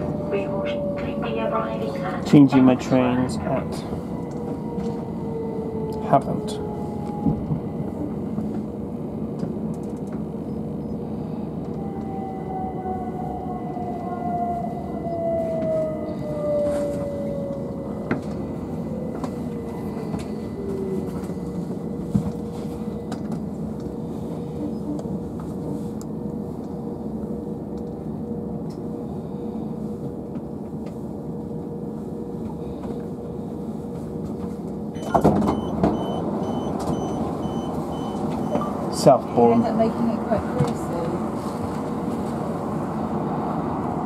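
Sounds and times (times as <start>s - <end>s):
train interior hum and rumble: 0.0s - 44.0s
high door-warning beeps: 35.0s - 38.8s.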